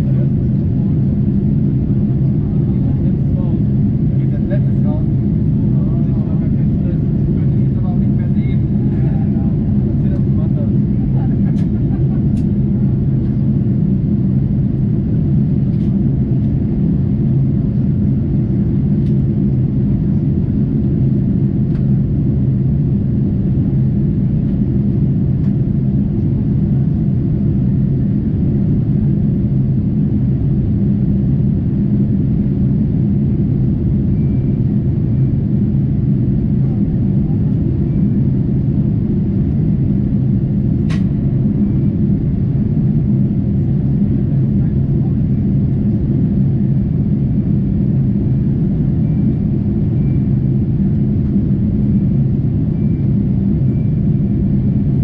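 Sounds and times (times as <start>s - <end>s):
aircraft engines rumbling: 0.0s - 55.0s
faint click: 40.9s - 41.1s.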